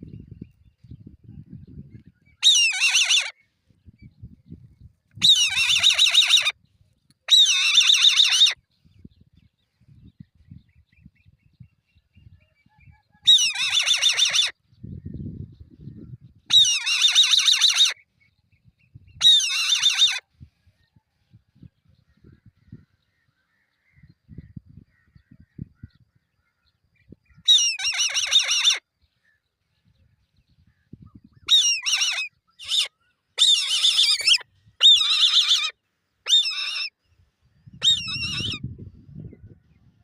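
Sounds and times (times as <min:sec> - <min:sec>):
young eagle calling: 0:02.4 - 0:03.4, 0:05.2 - 0:06.6, 0:07.3 - 0:08.6, 0:13.3 - 0:14.5, 0:19.2 - 0:20.2, 0:27.5 - 0:28.8, 0:31.4 - 0:37.0, 0:37.8 - 0:38.6.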